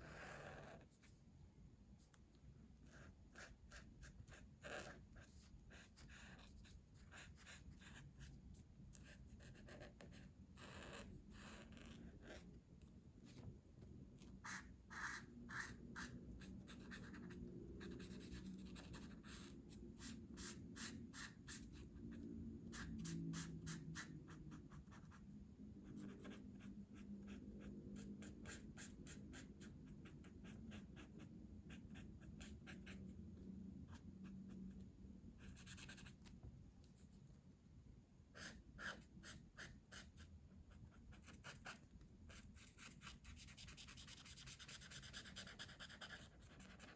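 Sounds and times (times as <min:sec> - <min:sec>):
colouring tool scratching on paper: 0:00.0 - 0:00.9, 0:09.0 - 0:12.5, 0:14.2 - 0:25.2, 0:40.9 - 0:46.9.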